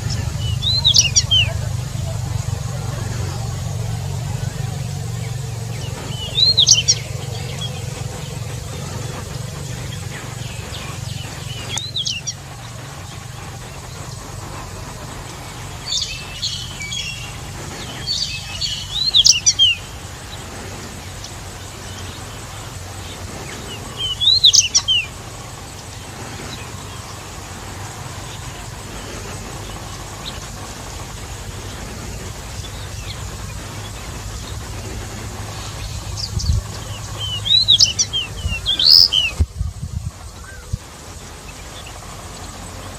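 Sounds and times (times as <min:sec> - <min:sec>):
bird singing whistled notes: 0:00.0 - 0:20.4, 0:21.1 - 0:25.3, 0:32.6 - 0:39.7
steady low rumble: 0:00.0 - 0:42.9.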